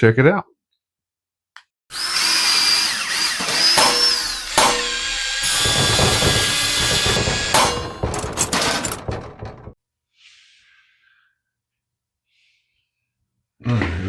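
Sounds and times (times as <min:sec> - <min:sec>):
power tool motor whining: 0:01.9 - 0:08.4.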